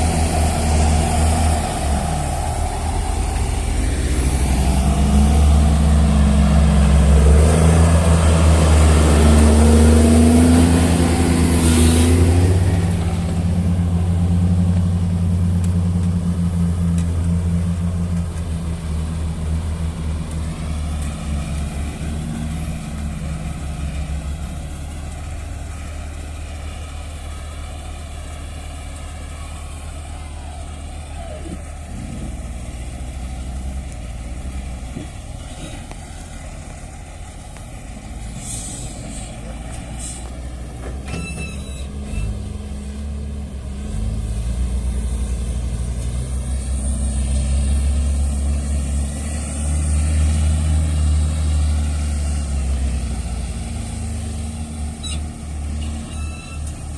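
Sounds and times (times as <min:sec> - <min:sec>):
heavy diesel engine running: 0:00.0 - 0:56.9
brief hisses: 0:38.4 - 0:40.3.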